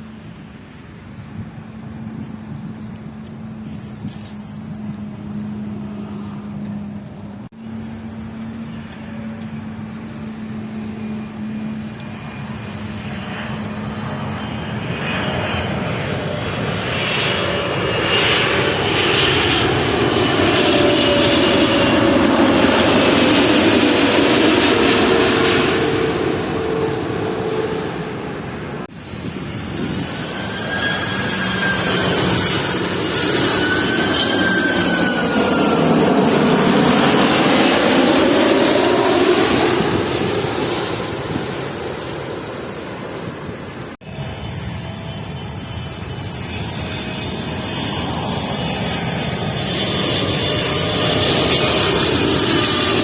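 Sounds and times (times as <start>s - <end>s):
jet airliner passing overhead: 0.0s - 53.0s
wavering high whines: 7.6s - 43.5s.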